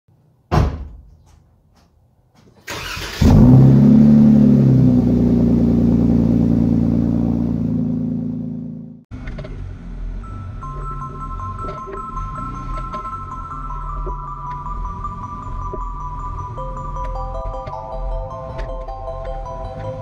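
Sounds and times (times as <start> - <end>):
car engine starting and idling: 2.6 - 20.0
engine cranking hiss: 2.7 - 3.2.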